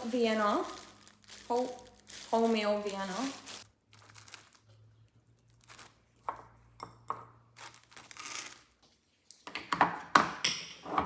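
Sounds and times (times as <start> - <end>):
plastic bag crinkling: 0.0 - 6.3, 7.5 - 8.8.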